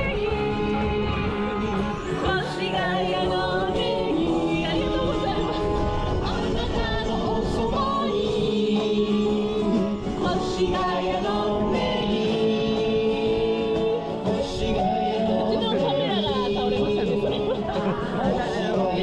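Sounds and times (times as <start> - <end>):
wind rumble on microphone: 0.0 - 13.8
acoustic guitar: 0.0 - 19.0.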